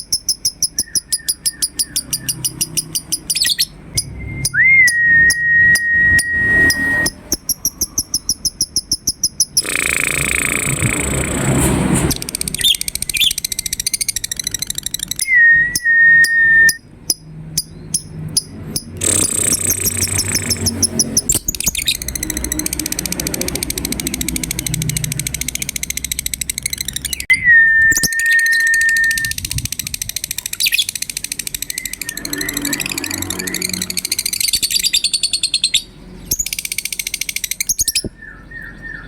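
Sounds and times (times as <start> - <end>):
lovebirds chattering in trills: 0.0 - 4.1, 17.1 - 27.3, 28.0 - 39.0
fast even ticking: 0.0 - 11.4, 17.1 - 27.3, 29.0 - 35.3
long level whistles: 0.6 - 7.3, 12.4 - 16.8, 26.6 - 29.4.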